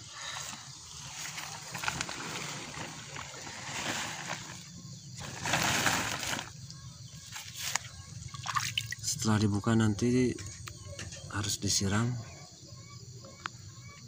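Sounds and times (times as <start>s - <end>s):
plastic tarp rustling: 0.2s - 6.6s.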